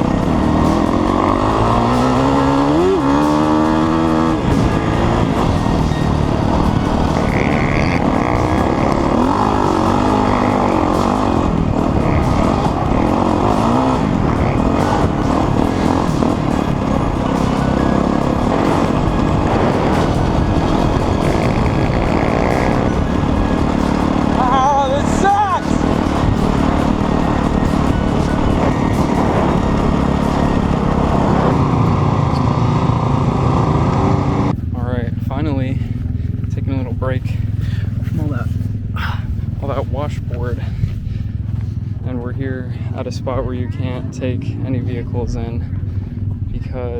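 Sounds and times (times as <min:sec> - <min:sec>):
wind rushing: 0:00.0 - 0:34.8
dirt bike engine: 0:00.0 - 0:46.9
rumble over rough ground: 0:00.0 - 0:46.9.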